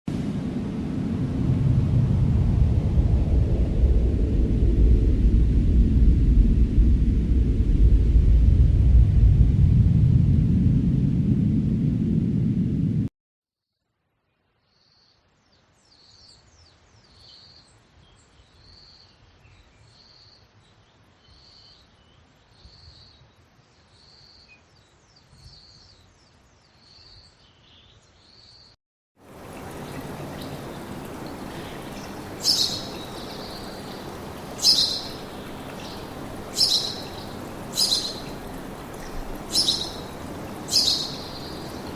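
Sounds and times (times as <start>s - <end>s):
low background rumble: 0.1s - 13.1s
faint birds chirping: 29.3s - 41.9s
low rushing noise: 29.3s - 41.9s.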